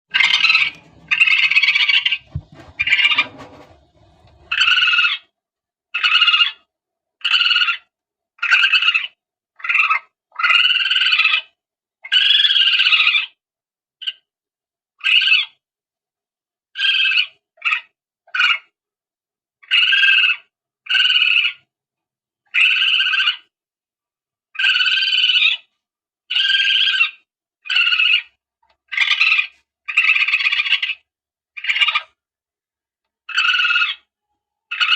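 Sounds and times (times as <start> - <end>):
low handling rumble: 0.1 - 4.8
civet squealing calls: 33.3 - 34.1.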